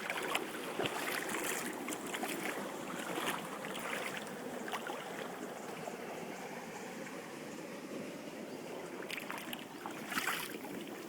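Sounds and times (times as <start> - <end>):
water splashing: 0.0 - 5.8, 8.7 - 11.0
rushing water: 0.0 - 11.0.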